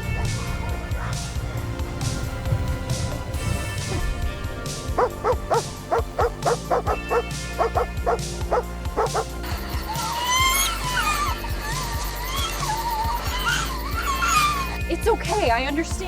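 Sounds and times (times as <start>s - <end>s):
background music: 0.0s - 16.0s
dog barking: 4.9s - 9.3s.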